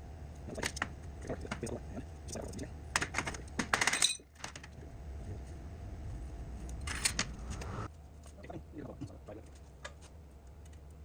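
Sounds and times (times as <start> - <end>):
low steady hum: 0.0 - 11.0
metal parts clinking and rattling: 3.0 - 4.7, 6.7 - 7.3.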